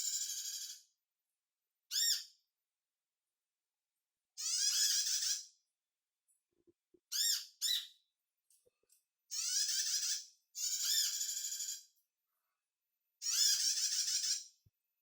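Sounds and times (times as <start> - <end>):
high squeaky bird chirping: 1.9 - 2.3, 4.4 - 5.4, 7.1 - 8.0, 9.3 - 11.8, 13.2 - 14.5.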